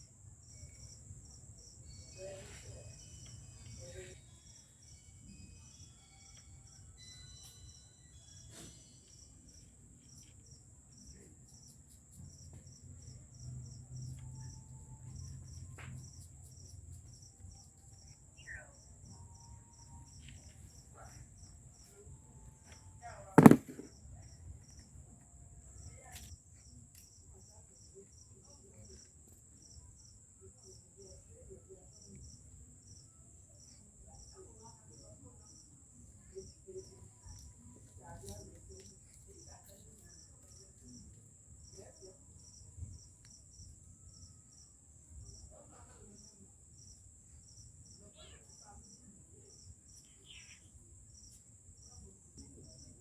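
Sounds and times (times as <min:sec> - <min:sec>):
insects chirping: 0:00.2 - 0:22.5, 0:46.1 - 0:53.0.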